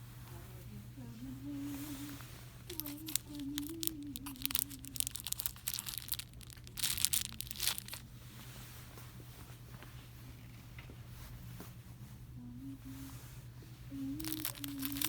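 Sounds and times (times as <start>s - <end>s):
steady low hum: 0.0s - 15.0s
plastic packaging crinkling: 2.7s - 8.0s, 14.1s - 15.0s.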